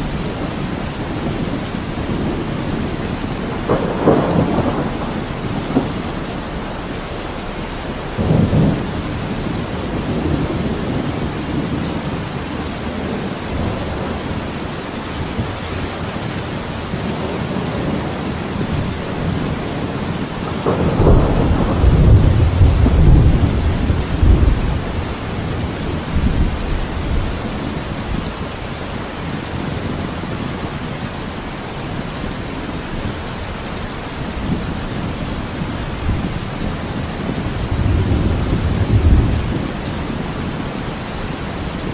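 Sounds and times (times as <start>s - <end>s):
heavy rain: 0.0s - 41.9s
thunder rumbling: 0.0s - 41.9s.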